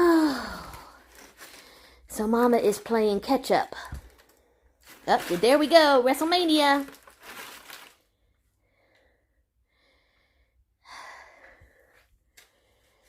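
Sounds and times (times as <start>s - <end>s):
packing paper rustling: 0.6s - 2.0s, 3.9s - 8.1s.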